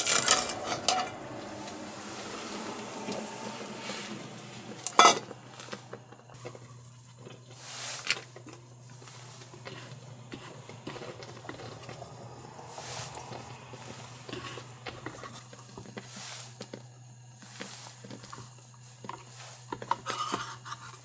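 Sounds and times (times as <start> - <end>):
soft hissing: 0.4 - 6.4, 7.5 - 16.7.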